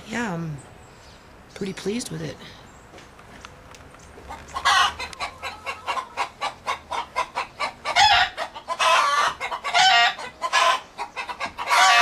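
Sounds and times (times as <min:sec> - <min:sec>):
hens clucking rapidly: 0:04.2 - 0:12.0
hens drawn-out calls: 0:04.3 - 0:12.0.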